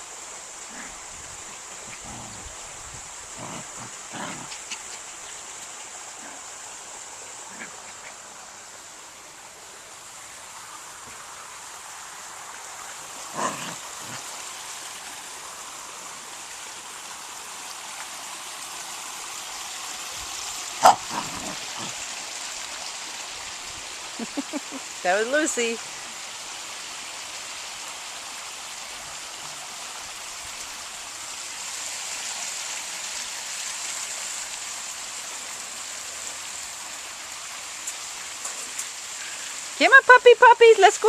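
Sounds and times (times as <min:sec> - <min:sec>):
outdoor hiss: 0:00.0 - 0:41.0
puppies yelping: 0:20.8 - 0:22.0.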